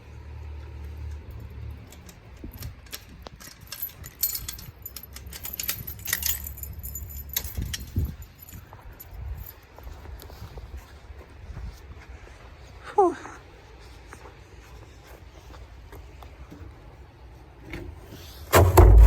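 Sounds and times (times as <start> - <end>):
metallic jingling and clinking: 1.3 - 9.8.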